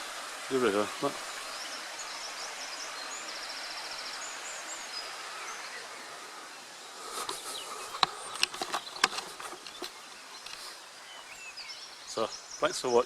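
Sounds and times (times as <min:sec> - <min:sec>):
outdoor hiss: 0:00.0 - 0:13.0
footsteps on twigs: 0:07.0 - 0:11.5.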